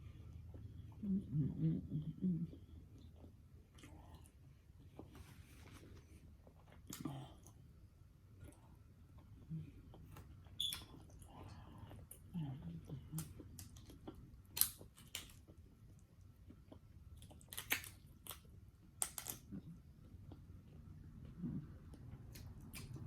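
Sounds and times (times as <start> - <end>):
chewing: 8.4 - 23.0.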